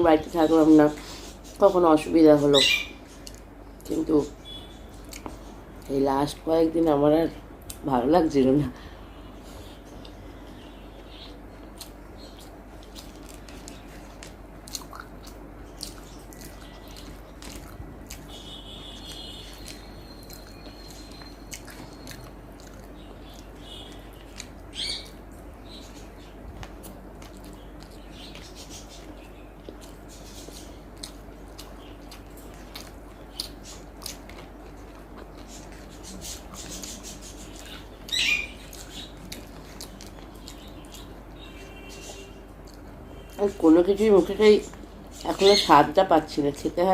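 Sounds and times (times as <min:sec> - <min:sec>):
steady low hum: 0:00.0 - 0:46.9
person chewing: 0:03.2 - 0:03.5, 0:05.0 - 0:05.9, 0:09.5 - 0:25.2, 0:26.6 - 0:43.0.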